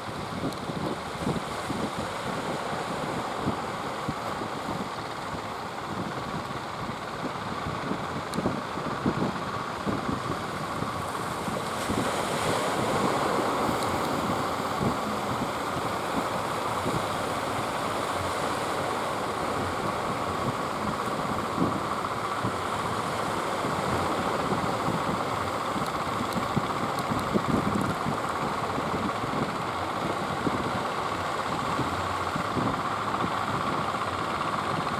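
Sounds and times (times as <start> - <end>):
boat engine running: 0.1 - 34.9
wind buffeting microphone: 0.1 - 34.9.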